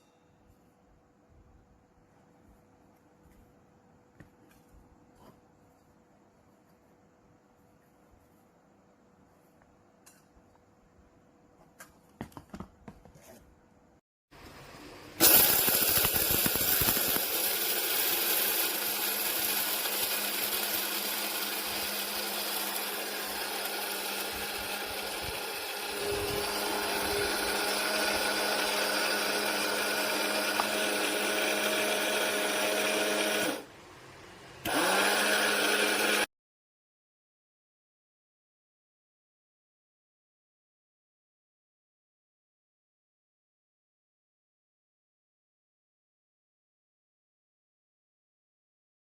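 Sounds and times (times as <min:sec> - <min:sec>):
electric coffee grinder motor: 0:15.2 - 0:33.7, 0:34.6 - 0:36.3.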